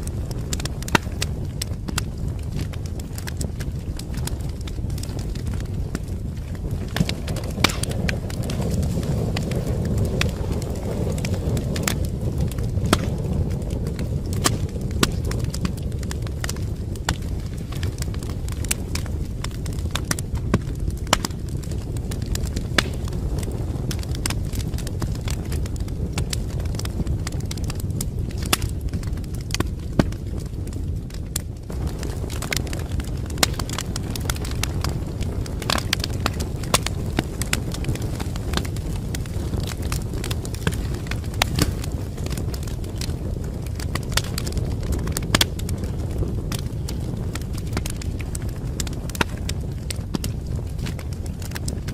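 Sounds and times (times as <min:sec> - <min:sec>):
low rumble of flames: 0:00.0 - 0:51.9
pops and snaps of burning logs: 0:00.0 - 0:51.9
wood fire crackling: 0:00.0 - 0:51.9.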